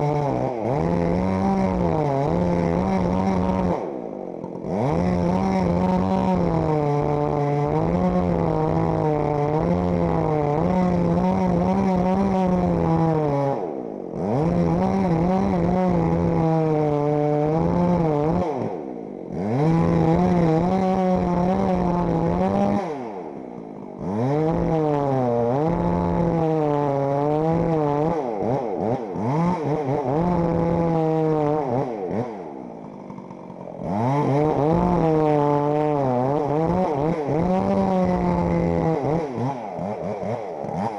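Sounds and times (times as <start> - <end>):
chainsaw cutting into tree: 0.0 - 40.9.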